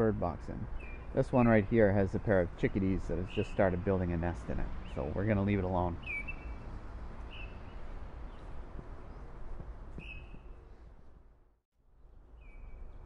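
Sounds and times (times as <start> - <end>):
low wind rumble: 0.0 - 13.0
high bird call: 6.0 - 6.6, 10.0 - 10.8.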